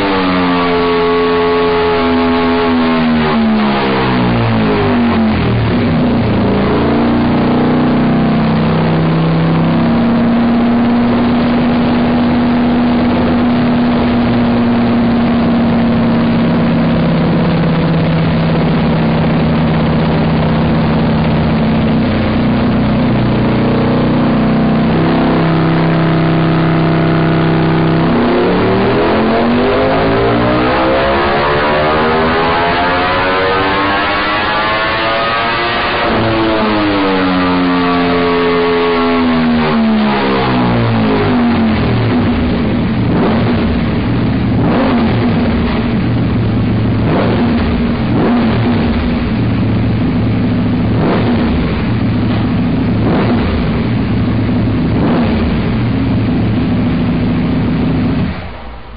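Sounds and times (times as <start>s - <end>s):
motorcycle engine on a dyno: 0.0s - 58.9s.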